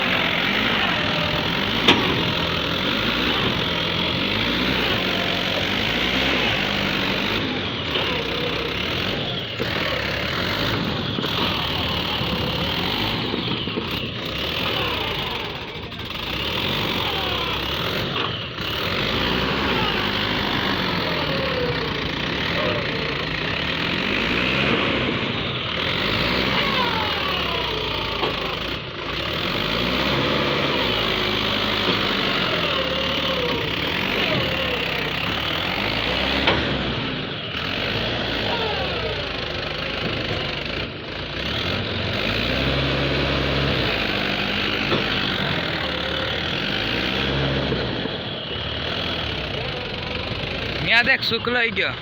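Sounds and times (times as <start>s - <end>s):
tractor engine revving: 0.0s - 52.0s.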